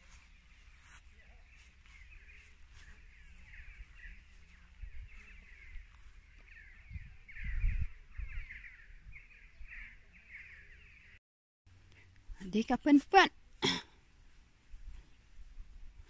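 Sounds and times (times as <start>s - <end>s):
birds chattering: 0.0s - 11.2s.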